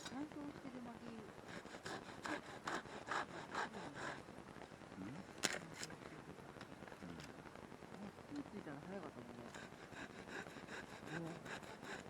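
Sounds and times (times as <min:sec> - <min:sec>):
hand saw cutting firewood: 0:01.5 - 0:04.2, 0:09.5 - 0:12.0.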